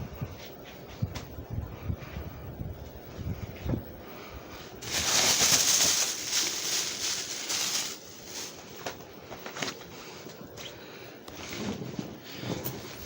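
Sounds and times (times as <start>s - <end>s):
packaging rustling and crinkling: 4.8s - 8.9s.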